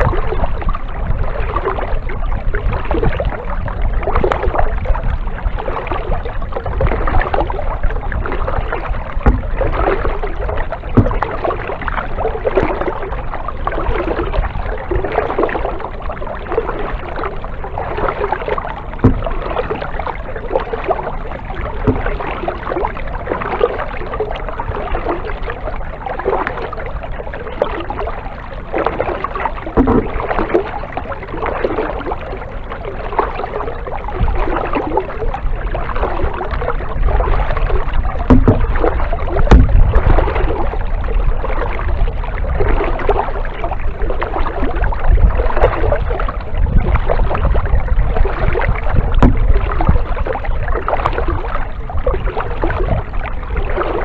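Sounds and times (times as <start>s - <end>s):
paddle splashing water: 0.0s - 54.0s
sharp knocks: 19.0s - 19.4s, 38.3s - 38.6s, 39.5s - 39.9s.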